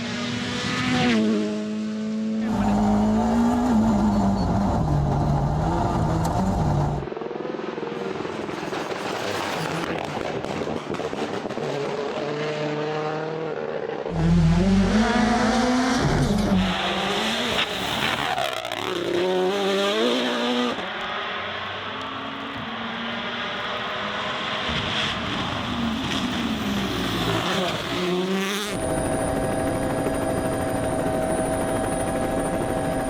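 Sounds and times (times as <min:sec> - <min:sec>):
rally car engines revving: 0:00.0 - 0:33.0.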